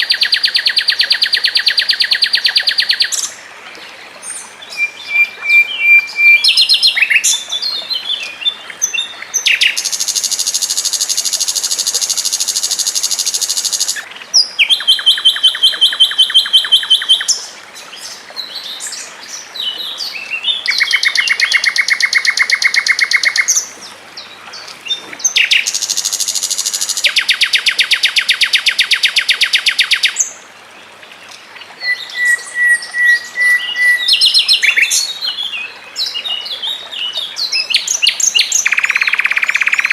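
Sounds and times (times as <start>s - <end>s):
songbird trilling: 4.7s - 7.5s, 8.8s - 17.5s, 20.6s - 23.6s, 37.6s - 39.9s
bird chirping: 37.0s - 39.9s.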